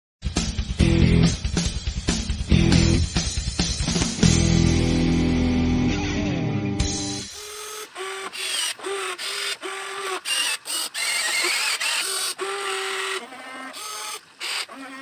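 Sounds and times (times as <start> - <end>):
small electric motors whining: 7.2 - 15.0.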